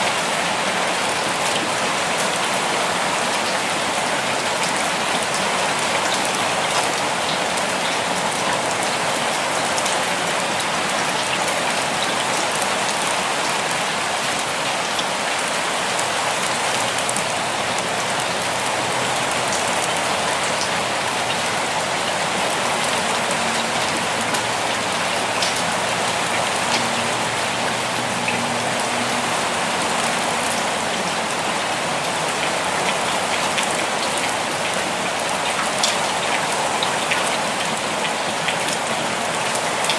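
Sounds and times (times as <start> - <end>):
steady rainfall hiss: 0.0 - 39.9
raindrops ticking: 16.0 - 29.2.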